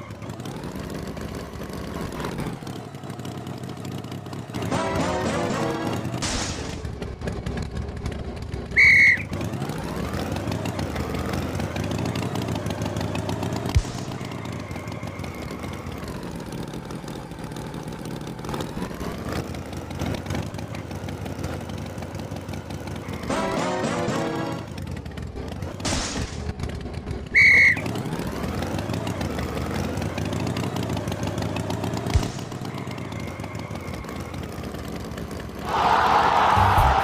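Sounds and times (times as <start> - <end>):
tractor engine revving: 0.0 - 37.0
high horn toot: 4.6 - 6.2, 23.2 - 24.7.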